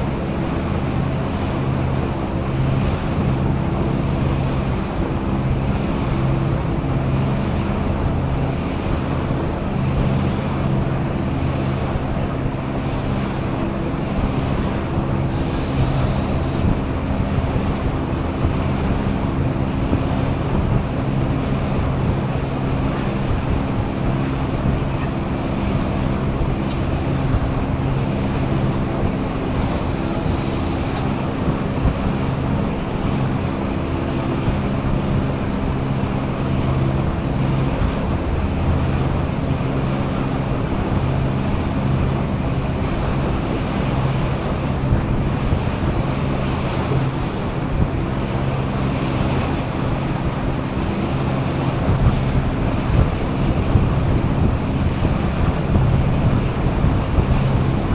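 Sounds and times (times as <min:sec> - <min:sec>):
boat engine humming: 0:00.0 - 0:57.9
water rushing past hull: 0:00.0 - 0:57.9
wind buffeting microphone: 0:00.0 - 0:57.9.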